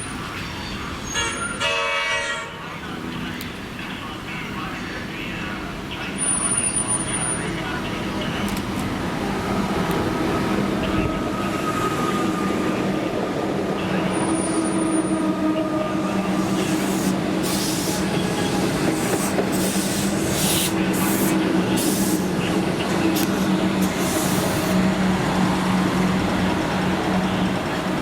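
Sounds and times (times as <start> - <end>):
squealing wheels on rail: 0.0 - 1.7, 6.1 - 8.6, 9.4 - 13.1, 13.8 - 27.8
train motor hum: 14.6 - 28.0.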